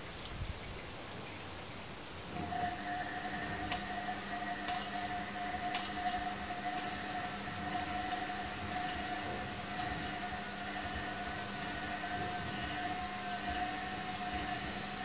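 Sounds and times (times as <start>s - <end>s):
washing machine motor whine: 2.1s - 15.0s
object clinking against drum: 4.7s - 15.0s.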